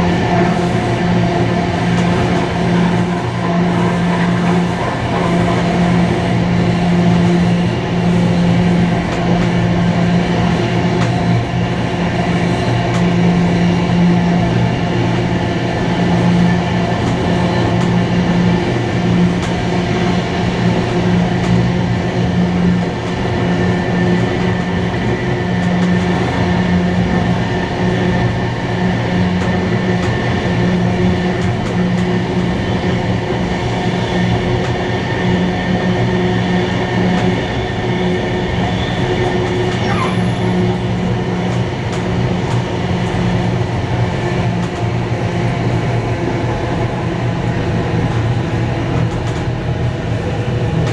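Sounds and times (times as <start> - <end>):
train running along the line: 0.0 - 50.9.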